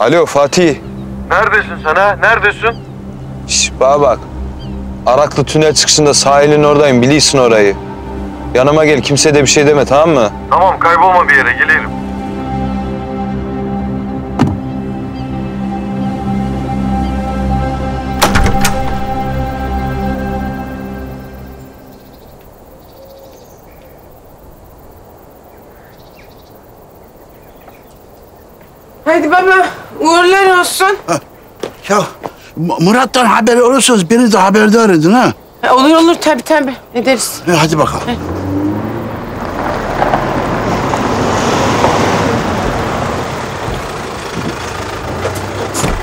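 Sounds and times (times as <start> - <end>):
faint bird chirps and trills: 0.0 - 5.1, 13.6 - 17.7, 19.7 - 37.7
steady low hiss: 14.9 - 37.9
vehicle engine and tyre noise: 37.3 - 46.0.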